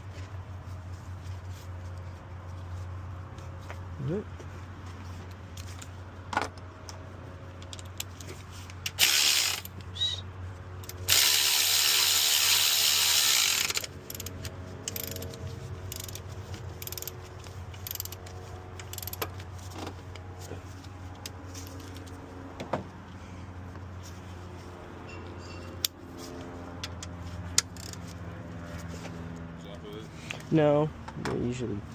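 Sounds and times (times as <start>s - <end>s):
ratchet wrench clicking: 7.6s - 9.9s, 10.8s - 19.3s, 26.9s - 28.1s.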